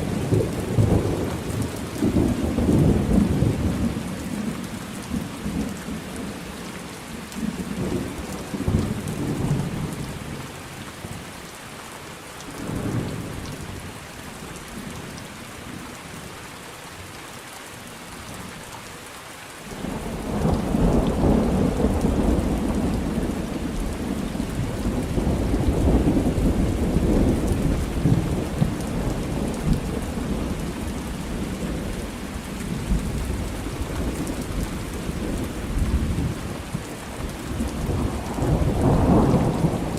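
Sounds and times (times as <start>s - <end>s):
steady rain: 0.0s - 39.9s
rolling thunder: 19.8s - 39.9s.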